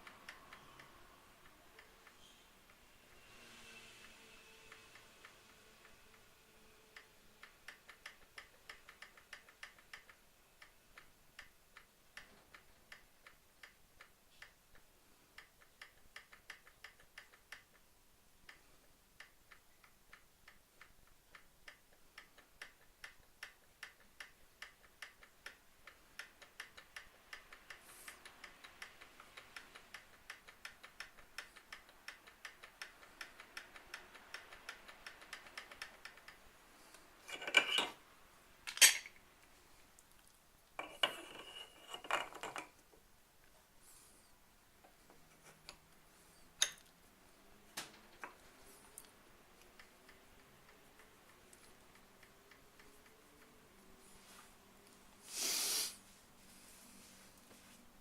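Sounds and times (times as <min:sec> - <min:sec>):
rapid mechanical ticking: 0:15.4 - 0:36.6.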